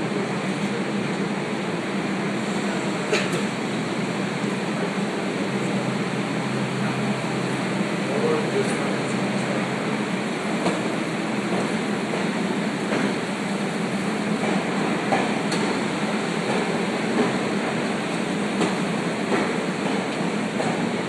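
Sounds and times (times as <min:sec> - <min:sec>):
train wheels rumbling on track: 0:00.0 - 0:21.0
rail clicks: 0:08.3 - 0:21.0.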